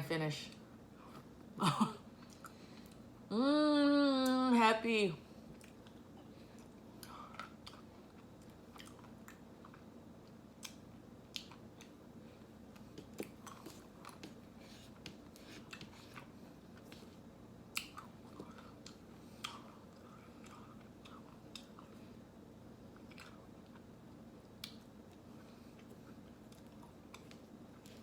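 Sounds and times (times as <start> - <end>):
chewing and biting: 5.6 - 12.0, 12.7 - 22.0, 22.9 - 23.9.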